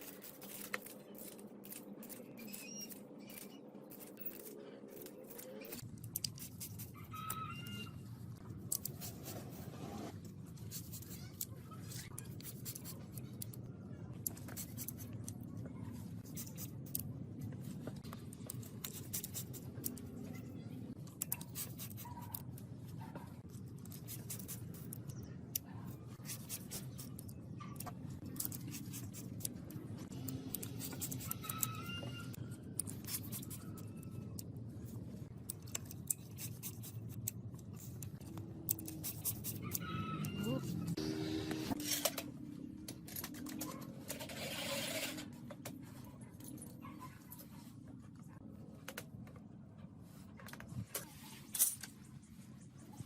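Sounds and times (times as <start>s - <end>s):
small clicks and scratching: 0.0s - 41.0s.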